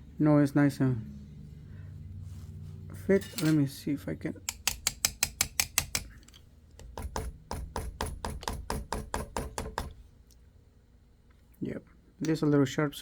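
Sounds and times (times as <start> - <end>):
rapid small hard clicks: 4.5 - 10.0.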